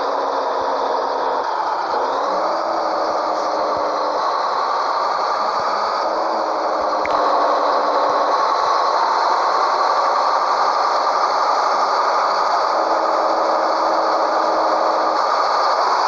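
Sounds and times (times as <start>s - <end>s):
diesel truck engine running: 0.0s - 16.0s
brief click: 7.0s - 7.3s.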